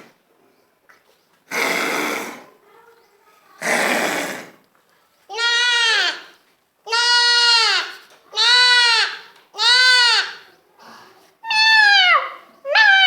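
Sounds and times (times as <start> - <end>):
child imitating goat bleating: 5.3 - 6.3, 6.9 - 10.5.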